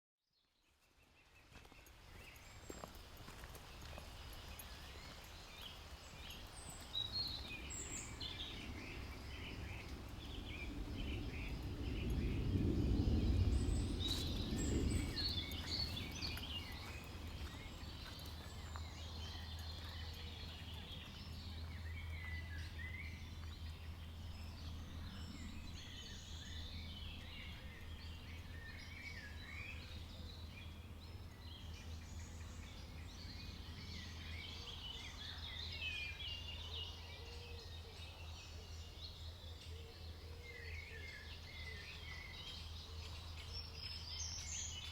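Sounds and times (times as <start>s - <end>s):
songbirds chirping: 0.3s - 44.9s
low rumble: 7.1s - 34.6s.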